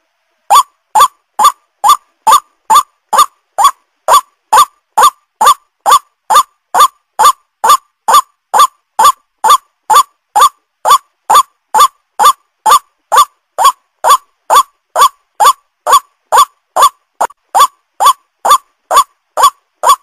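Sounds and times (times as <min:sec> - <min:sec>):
waterhen calls: 0:00.5 - 0:20.0.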